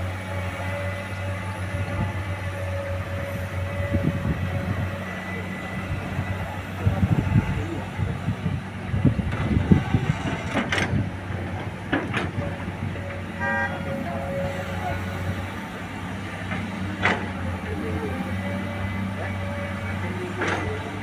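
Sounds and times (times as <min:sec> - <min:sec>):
truck diesel engine running: 0:00.0 - 0:21.0
truck horn toot: 0:13.3 - 0:14.8.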